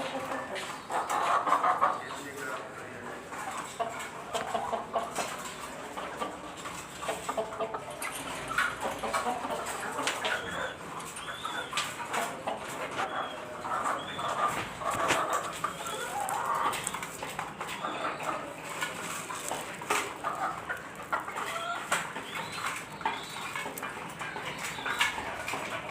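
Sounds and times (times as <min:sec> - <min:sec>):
chickens clucking: 0:00.0 - 0:25.9.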